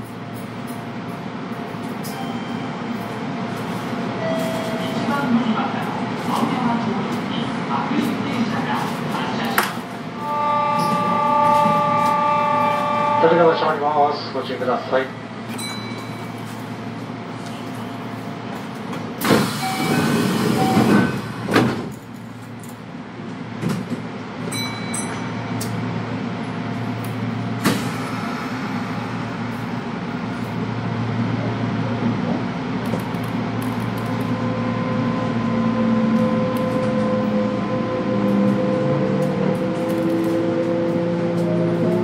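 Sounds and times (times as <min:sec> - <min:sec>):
train car rumble: 0:00.0 - 0:42.0
loud rush of air: 0:27.6 - 0:30.4.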